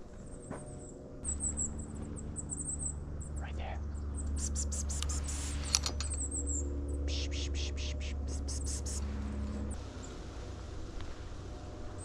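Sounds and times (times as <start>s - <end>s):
high thin bird calls: 3.4s - 9.1s
rapid hissy bird clicks: 4.2s - 6.3s.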